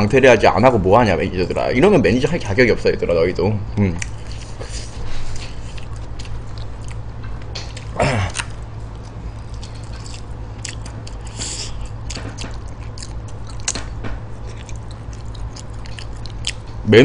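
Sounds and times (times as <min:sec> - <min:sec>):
steady low hum: 0:00.0 - 0:17.0
person chewing: 0:03.9 - 0:16.9.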